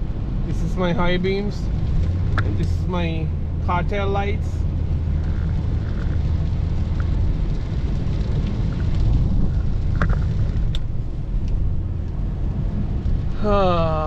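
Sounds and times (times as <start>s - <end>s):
road and tyre noise in car: 0.0s - 14.0s
faint ticks: 5.2s - 12.2s.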